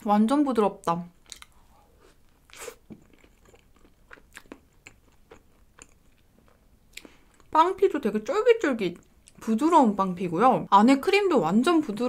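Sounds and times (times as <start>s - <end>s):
chewing with mouth clicks: 1.2s - 1.6s, 2.2s - 7.5s.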